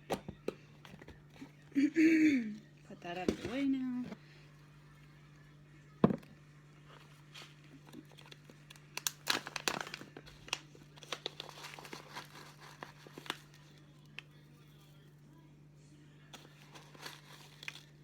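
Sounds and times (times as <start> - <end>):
packaging crinkling: 7.0 - 14.3, 16.4 - 18.0.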